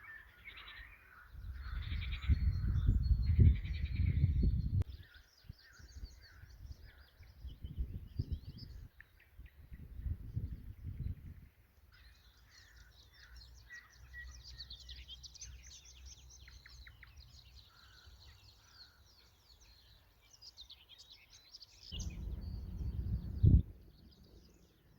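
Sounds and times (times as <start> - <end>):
birds singing chorus: 0.0 - 24.9
low rumble: 21.9 - 24.6.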